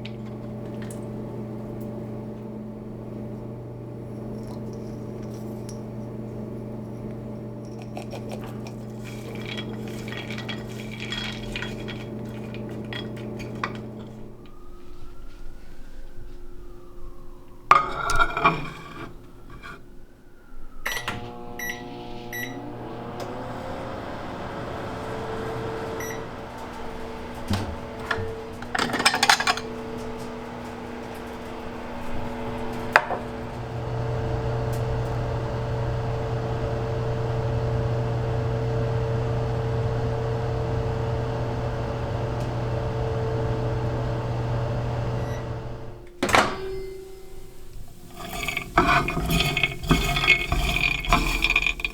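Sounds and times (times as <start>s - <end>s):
microwave humming: 0.0s - 15.0s, 17.5s - 51.9s
microwave beeps: 20.8s - 23.3s, 25.9s - 26.5s, 40.9s - 47.2s.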